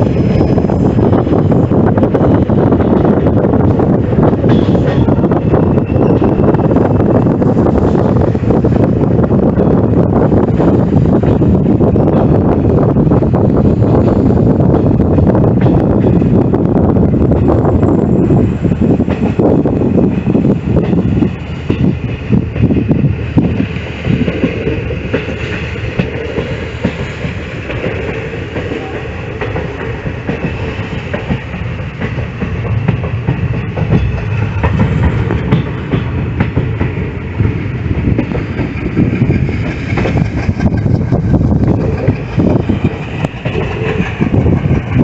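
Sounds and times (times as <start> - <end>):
train rumble: 0.0 - 45.0
wheels clacking over rail joints: 18.2 - 45.0.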